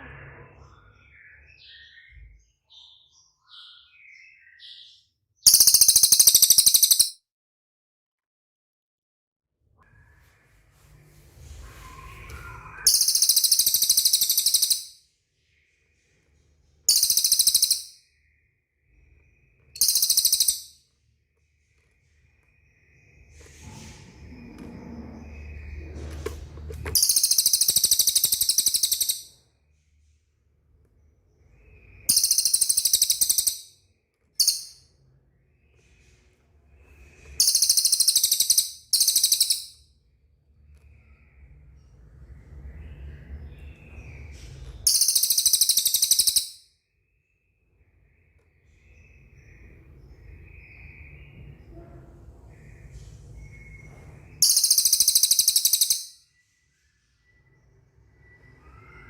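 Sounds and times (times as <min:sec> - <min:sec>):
bird singing buzzy trills: 0:00.9 - 0:07.2, 0:12.4 - 0:15.0, 0:16.9 - 0:20.8, 0:27.0 - 0:29.4, 0:31.4 - 0:33.8, 0:36.7 - 0:39.8, 0:41.0 - 0:51.9, 0:52.6 - 0:56.4.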